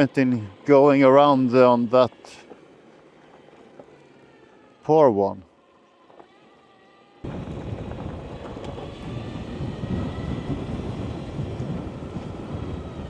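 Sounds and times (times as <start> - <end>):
wind buffeting microphone: 7.2 - 13.0.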